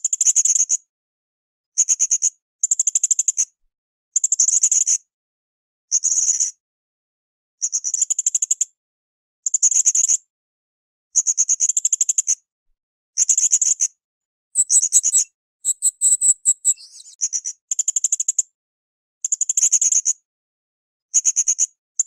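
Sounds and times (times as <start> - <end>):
parrot calling in high trills: 14.6 - 17.2.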